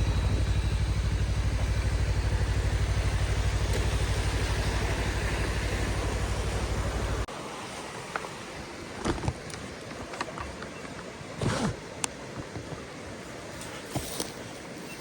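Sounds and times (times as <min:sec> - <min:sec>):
motorcycle engine idling: 0:00.0 - 0:07.3.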